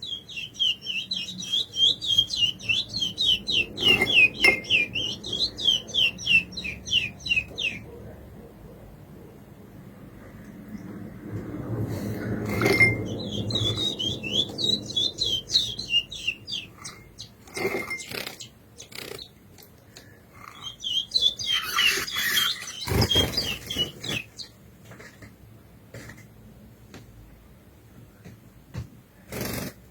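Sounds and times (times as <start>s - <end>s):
finch singing rapid high notes: 0.0s - 7.8s, 12.5s - 19.3s, 20.5s - 24.5s.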